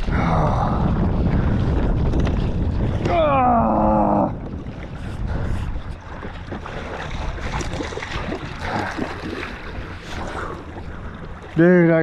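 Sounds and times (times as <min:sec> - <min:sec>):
water sloshing against hull: 0:00.0 - 0:12.0
wind buffeting microphone: 0:00.0 - 0:12.0.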